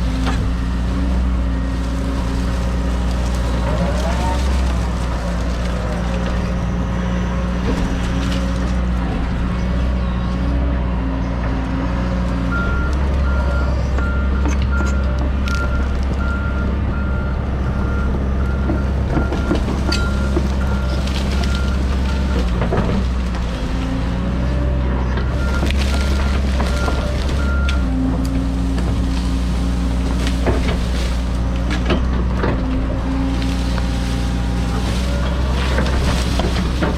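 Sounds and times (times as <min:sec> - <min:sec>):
excavator diesel engine running: 0:00.0 - 0:36.9
back-up alarm beeping: 0:25.3 - 0:28.0.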